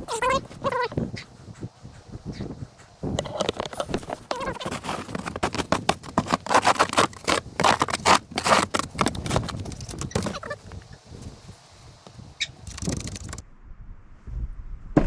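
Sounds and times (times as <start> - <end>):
snow shovel scraping through snow: 3.2 - 10.6.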